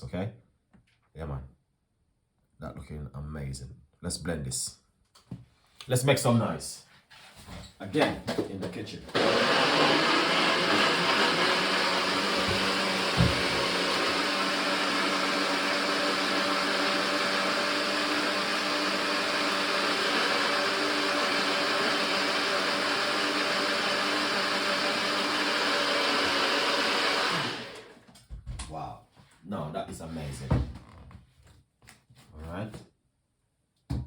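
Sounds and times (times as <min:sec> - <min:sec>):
blender running: 0:09.1 - 0:28.1.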